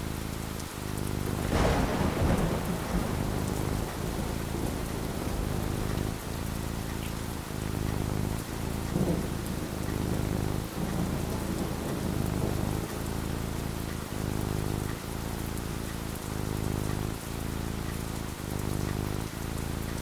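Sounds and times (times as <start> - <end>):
rain falling: 0.0 - 20.0
thunder rumble: 1.2 - 15.4.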